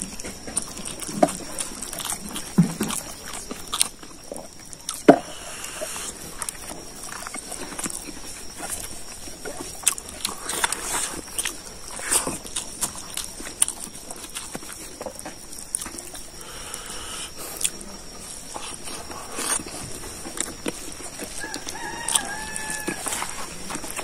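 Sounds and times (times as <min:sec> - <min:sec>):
wet chewing and lip-smacking: 0:00.0 - 0:24.0
rooster crowing: 0:21.3 - 0:23.6.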